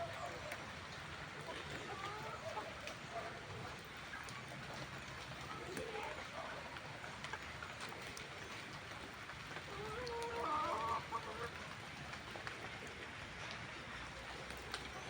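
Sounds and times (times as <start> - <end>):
chicken calling: 9.6 - 11.6.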